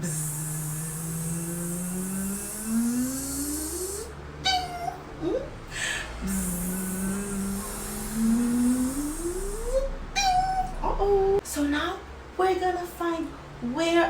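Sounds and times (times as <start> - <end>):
woman imitating bee buzz: 0.0 - 5.6, 6.2 - 10.8
short vocal sounds: 0.0 - 10.9.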